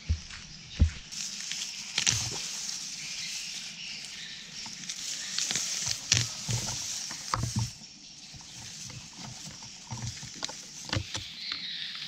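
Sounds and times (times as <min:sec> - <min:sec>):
rustling leaves: 0:00.0 - 0:12.0
stalks snapping: 0:01.2 - 0:07.8.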